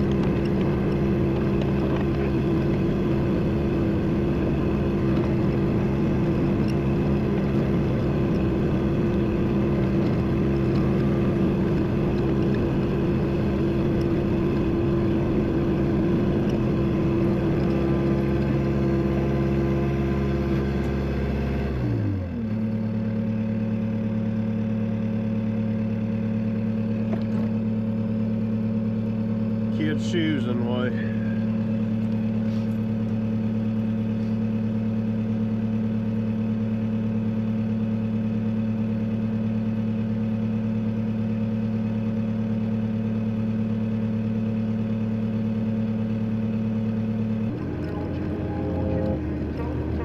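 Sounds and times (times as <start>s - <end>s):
truck engine running: 0.0s - 50.0s.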